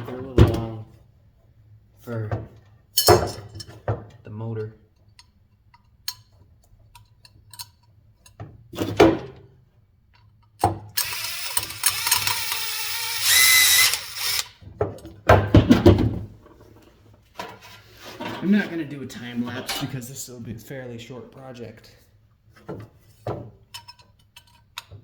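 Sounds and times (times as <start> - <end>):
handheld power tool whining: 11.0 - 14.6.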